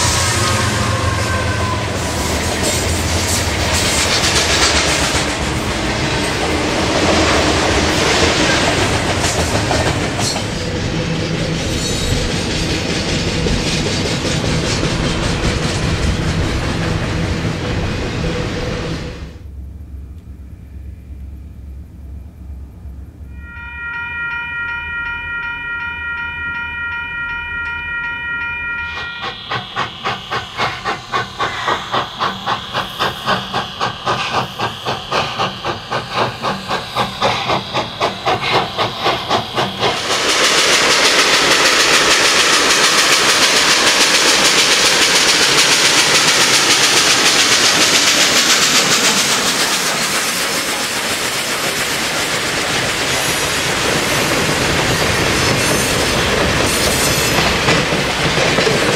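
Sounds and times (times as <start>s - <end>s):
diesel locomotive horn: 0.0s - 2.9s, 23.3s - 29.4s
steam hissing: 0.0s - 19.4s, 28.1s - 58.9s
steam locomotive chuffing: 0.0s - 19.5s, 23.7s - 58.9s
freight train rumbling past: 0.0s - 58.9s.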